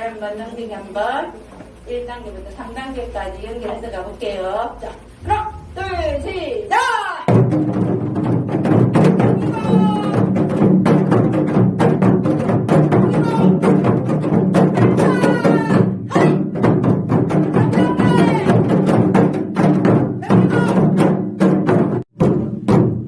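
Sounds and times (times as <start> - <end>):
group of drums struck in rhythm: 7.2 - 23.0.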